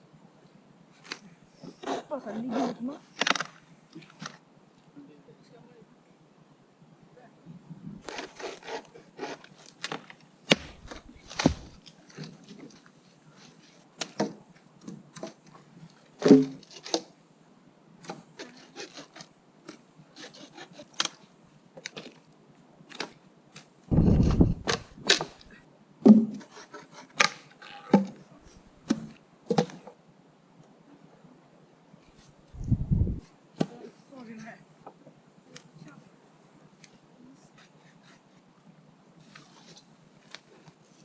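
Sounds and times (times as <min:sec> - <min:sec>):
wood cracking and knocking: 0:09.9 - 0:11.8
heavy low rumbling knock: 0:23.9 - 0:24.7.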